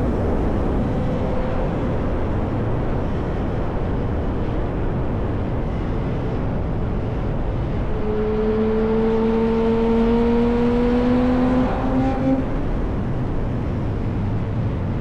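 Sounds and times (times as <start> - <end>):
riding wind rushing: 0.0 - 15.0
motorcycle engine revving up: 8.0 - 12.8.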